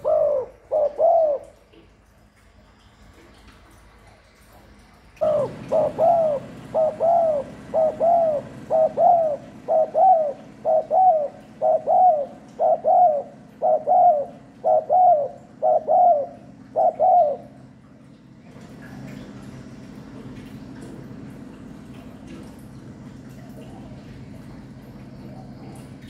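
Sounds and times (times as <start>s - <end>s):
dove cooing: 0.0s - 1.8s, 5.2s - 17.7s.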